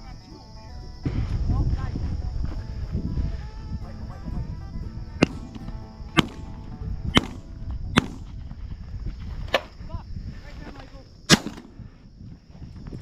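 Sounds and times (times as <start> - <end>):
high-pitched buzz: 0.0 - 8.7
shotgun shots: 5.2 - 8.5, 11.3 - 11.8.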